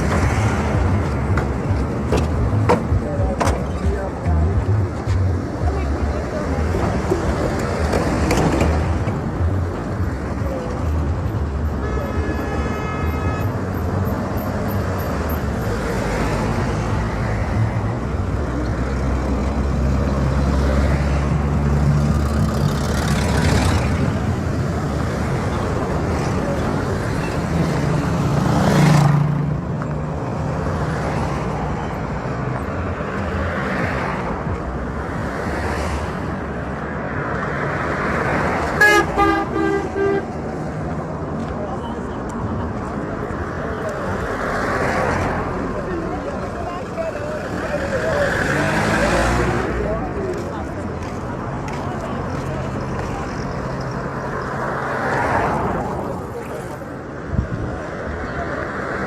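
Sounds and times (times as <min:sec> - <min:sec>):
traffic passing: 0:00.0 - 0:59.0
car horn tooting: 0:11.8 - 0:13.8, 0:38.8 - 0:40.4.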